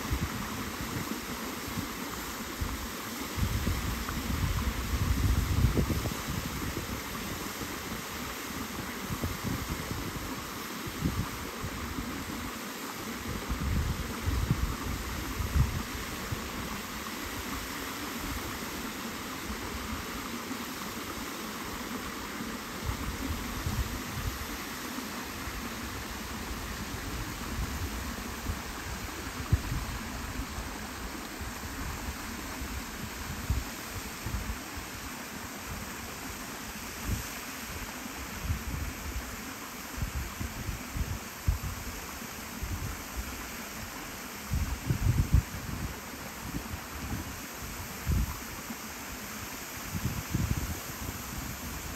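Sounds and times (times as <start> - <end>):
rushing water: 0.0 - 51.9
wind buffeting microphone: 3.4 - 7.0, 44.5 - 47.3.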